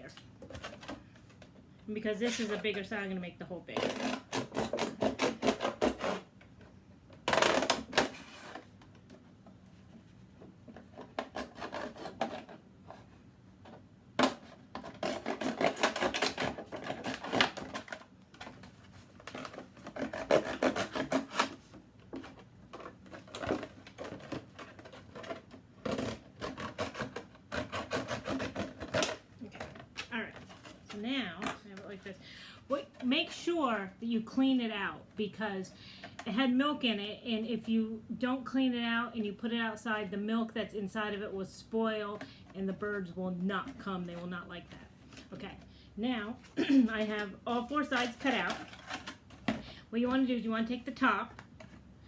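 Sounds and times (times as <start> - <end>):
knife cutting plastic jug: 3.7 - 6.3, 10.7 - 13.1, 14.2 - 18.6, 19.2 - 32.1, 46.6 - 50.2.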